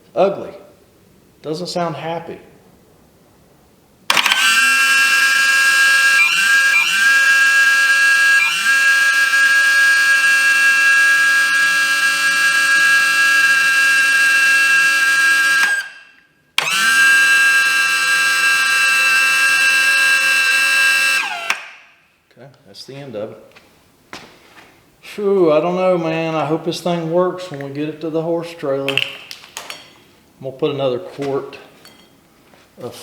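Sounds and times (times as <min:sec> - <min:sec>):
hydraulic pump whining: 0:04.1 - 0:21.9.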